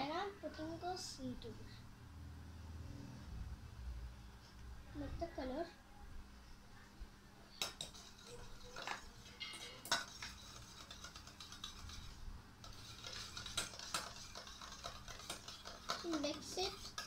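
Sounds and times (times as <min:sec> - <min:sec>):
spoon clinking against cup: 0:07.6 - 0:12.0
spoon scraping in cup: 0:07.6 - 0:17.0.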